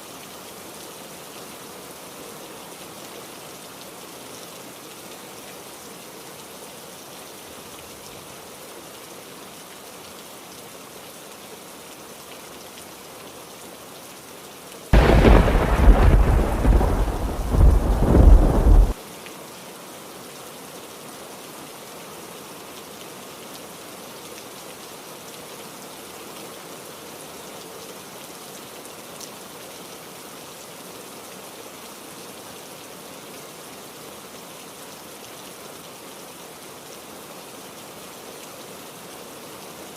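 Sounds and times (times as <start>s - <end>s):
heavy rain: 0.0s - 39.9s
thunderclap rumbling: 15.0s - 19.0s.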